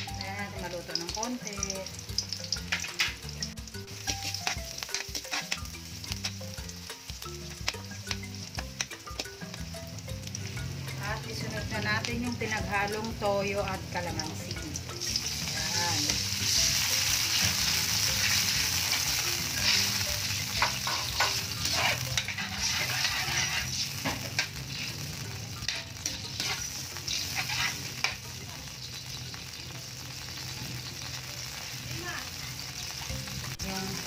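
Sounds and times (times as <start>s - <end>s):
sauce sizzling in a hot wok: 0.0s - 34.0s
metal spatula scraping a pan: 2.5s - 3.4s, 4.0s - 6.5s, 16.0s - 29.4s.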